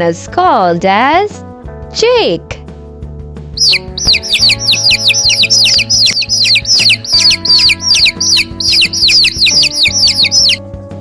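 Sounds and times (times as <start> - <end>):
background music: 0.0 - 11.0
chicks peeping: 3.6 - 10.6.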